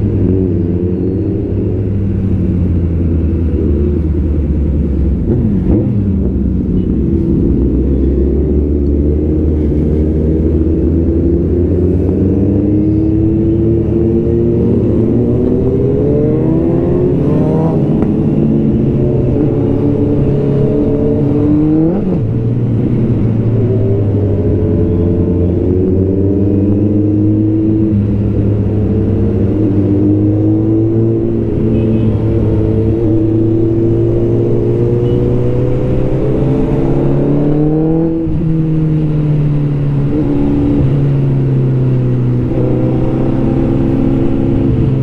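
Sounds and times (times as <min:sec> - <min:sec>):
motorcycle engines revving: 0:00.0 - 0:45.0.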